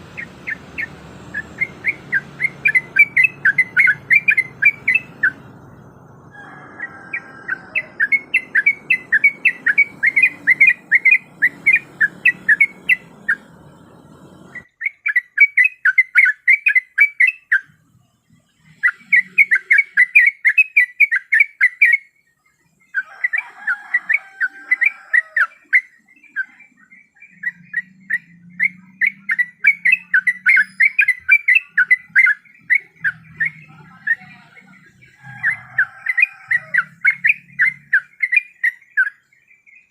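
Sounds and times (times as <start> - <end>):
low background rumble: 0.0 - 14.7
bulbul calling in sharp notes: 0.0 - 17.7, 27.2 - 39.2.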